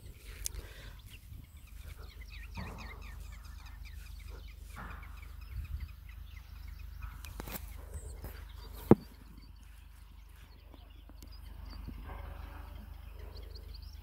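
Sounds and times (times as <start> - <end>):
birds chirping: 0.0 - 14.0
low steady rumble: 0.0 - 14.0.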